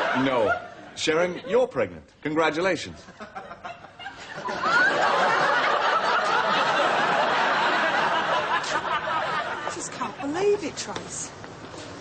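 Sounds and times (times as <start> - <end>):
audience laughing: 3.0 - 10.6.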